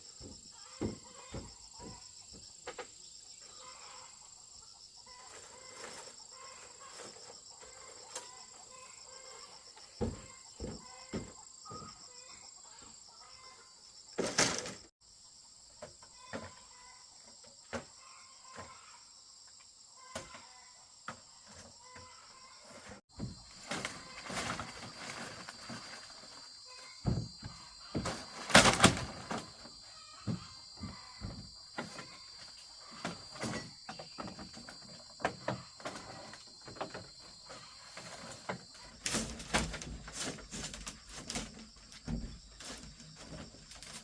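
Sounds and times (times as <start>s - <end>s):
high chorus of insects: 0.0s - 44.0s
chickens clucking: 0.2s - 13.7s.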